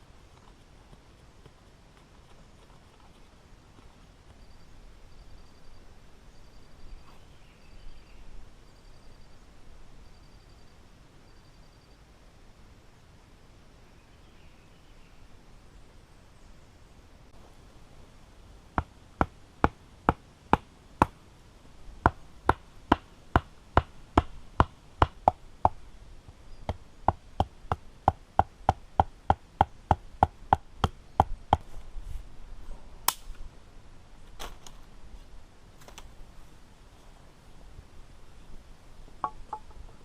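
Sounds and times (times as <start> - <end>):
sharp wood crack: 33.1 - 33.4.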